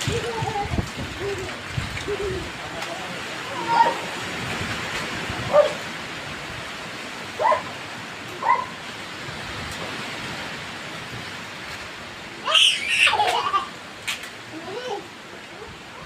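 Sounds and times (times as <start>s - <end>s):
wind noise on microphone: 0.0s - 2.8s, 3.4s - 7.7s.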